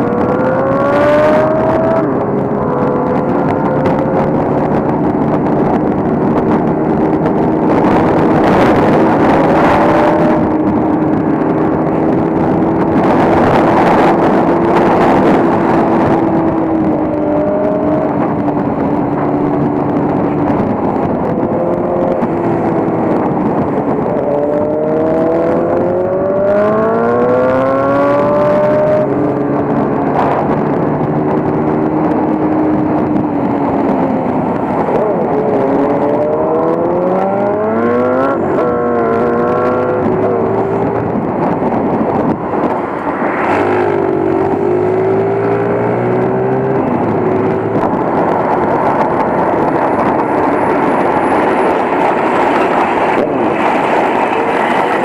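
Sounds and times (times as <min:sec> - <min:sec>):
wind rushing: 0:00.0 - 0:55.0
motorcycle engine running: 0:01.4 - 0:26.2.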